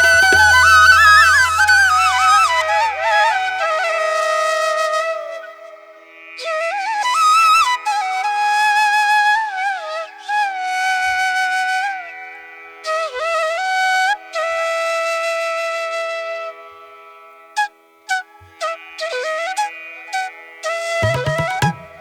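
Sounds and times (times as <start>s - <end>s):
flute playing slow melody: 0.0s - 5.8s, 18.2s - 22.0s.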